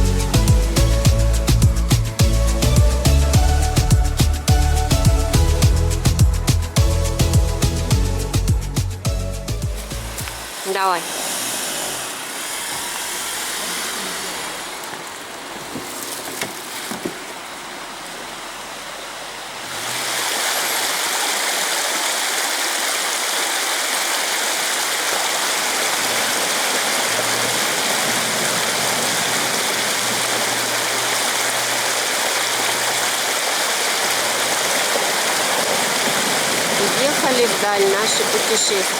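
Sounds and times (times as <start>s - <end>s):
rushing river water: 9.7s - 38.9s.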